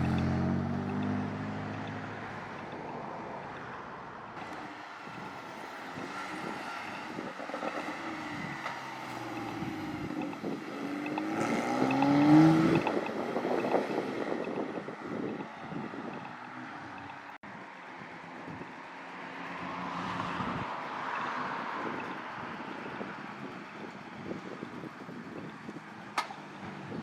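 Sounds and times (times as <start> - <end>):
sports car engine accelerating: 0.0 - 3.8, 4.4 - 17.4.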